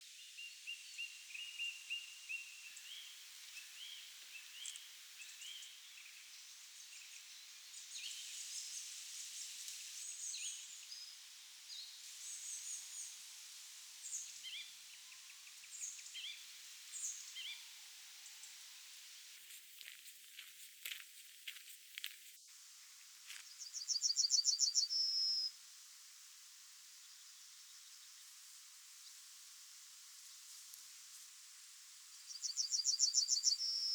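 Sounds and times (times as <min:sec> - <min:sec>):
faint background hiss: 0:00.0 - 0:33.9
songbirds chirping: 0:00.1 - 0:13.3, 0:14.0 - 0:25.6, 0:30.2 - 0:33.9.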